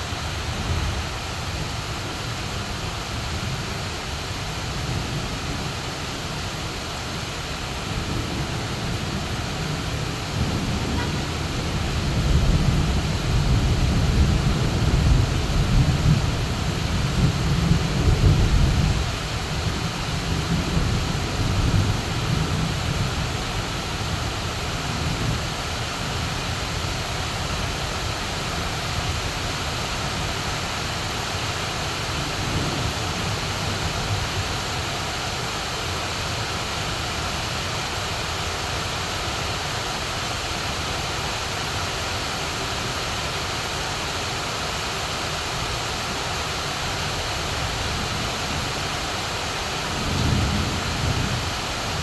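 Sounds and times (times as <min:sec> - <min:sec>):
heavy rain pouring: 0:00.0 - 0:52.0
low rumble of thunder: 0:07.7 - 0:26.4, 0:32.0 - 0:34.6, 0:49.7 - 0:52.0.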